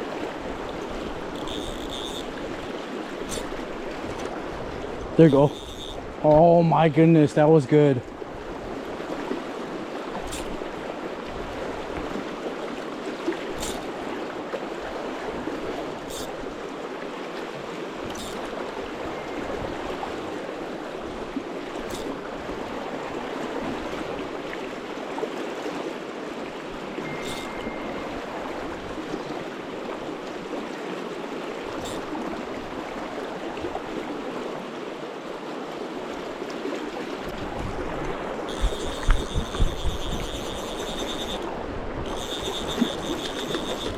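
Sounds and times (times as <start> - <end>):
river water flowing: 0.0 - 43.9
faint clicks: 38.0 - 43.9.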